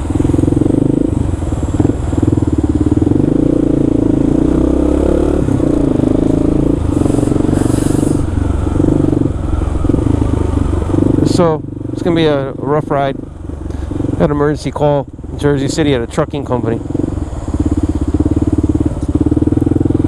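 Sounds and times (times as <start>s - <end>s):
motorcycle engine revving: 0.0s - 20.0s
short hiss: 6.9s - 8.3s.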